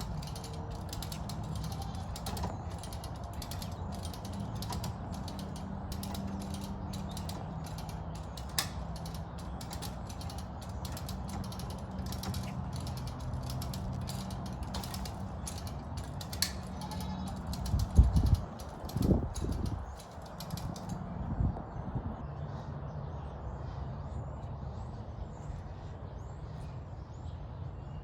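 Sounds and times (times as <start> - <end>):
ratchet strap clicking: 0.0 - 21.0.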